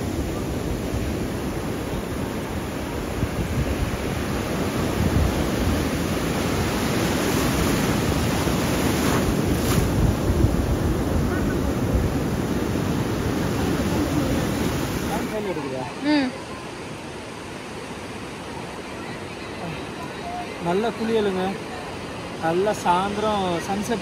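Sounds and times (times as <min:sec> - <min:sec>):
wind rumbling on microphone: 0:00.0 - 0:15.4
surf washing onto sandy beach: 0:00.0 - 0:24.0.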